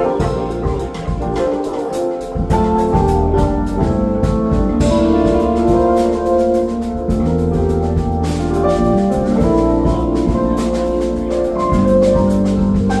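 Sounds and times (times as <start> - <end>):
drum kit: 0.0 - 13.0
instrumental band music: 0.0 - 13.0
keyboard chords: 0.0 - 13.0.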